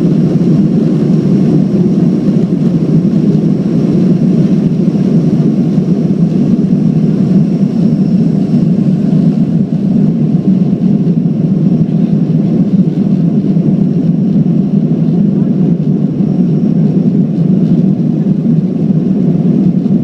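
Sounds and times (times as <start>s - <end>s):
faint high whine: 0.0s - 20.0s
jet engines roaring: 0.0s - 20.0s.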